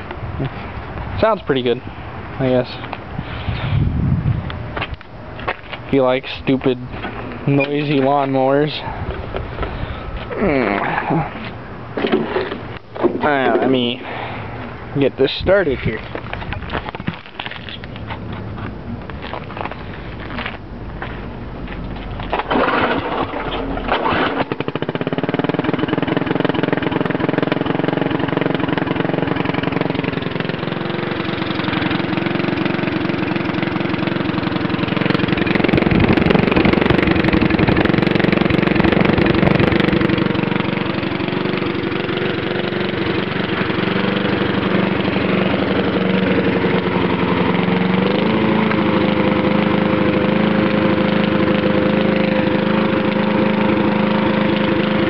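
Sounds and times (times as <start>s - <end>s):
small lawnmower engine running: 22.2s - 55.0s.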